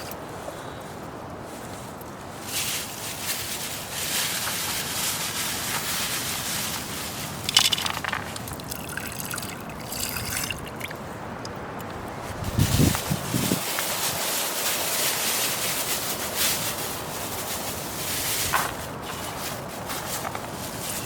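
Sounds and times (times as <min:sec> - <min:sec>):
water trickling and sloshing: 0:07.1 - 0:11.9.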